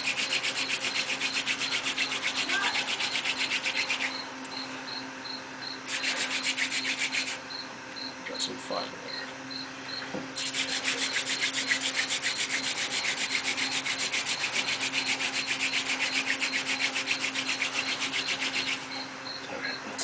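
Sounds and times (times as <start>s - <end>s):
wooden spindle rubbing on board: 0.0s - 4.2s, 5.9s - 7.4s, 10.4s - 19.0s.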